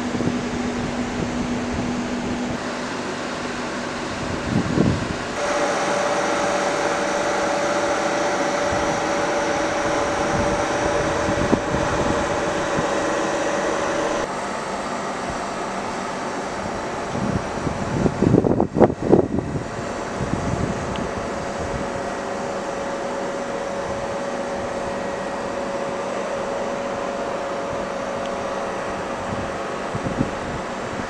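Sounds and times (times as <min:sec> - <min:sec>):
steady humming tone: 0:00.0 - 0:31.0
train coaches rolling on rails: 0:05.0 - 0:17.6.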